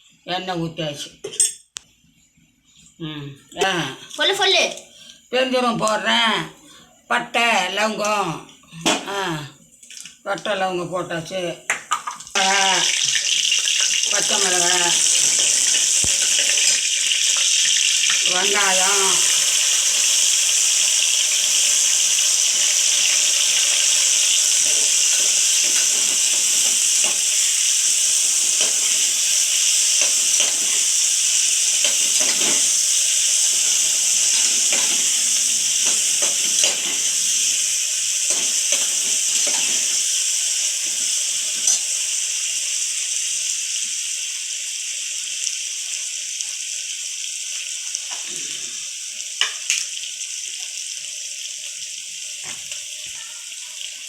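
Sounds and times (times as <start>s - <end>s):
onions sizzling in hot oil: 3.6s - 54.0s
spoon stirring and scraping: 21.3s - 37.4s, 38.2s - 40.0s.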